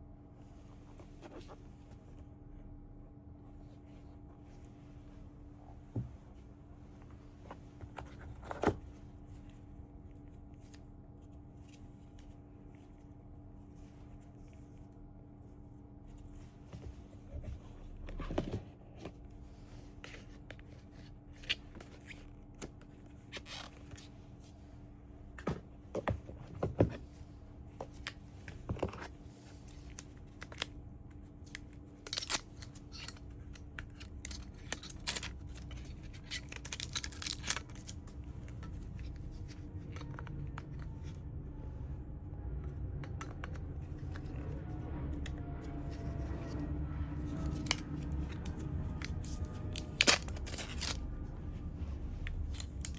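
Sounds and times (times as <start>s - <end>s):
faint steady hum: 0.0s - 52.9s
paper and cardboard rustling: 45.7s - 52.9s.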